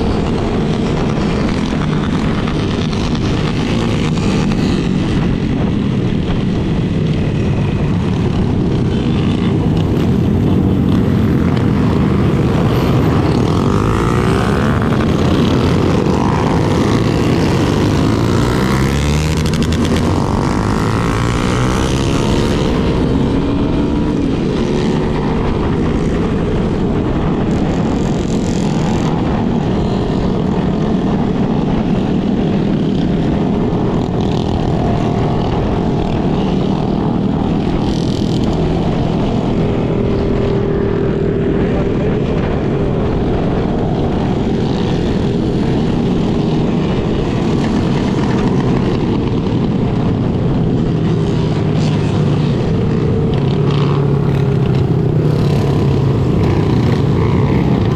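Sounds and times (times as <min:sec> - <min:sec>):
motorcycle engine: 0:00.0 - 0:57.9
other motorcycles: 0:00.0 - 0:57.9
wind noise: 0:00.0 - 0:57.9.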